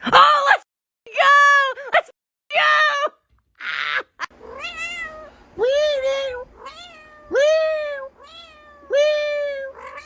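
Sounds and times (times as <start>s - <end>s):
cat meowing: 4.4s - 5.3s, 6.4s - 10.0s.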